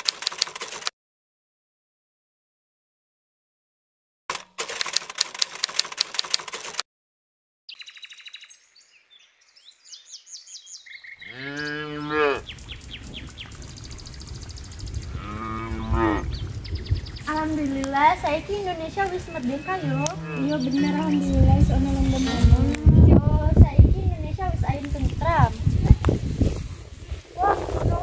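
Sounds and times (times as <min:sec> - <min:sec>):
fast run of clicks: 0:00.0 - 0:00.9, 0:04.3 - 0:06.8
birds chirping: 0:07.7 - 0:23.2
cow mooing: 0:11.2 - 0:12.5, 0:15.1 - 0:16.3, 0:19.5 - 0:23.1
low rumble: 0:12.5 - 0:28.0.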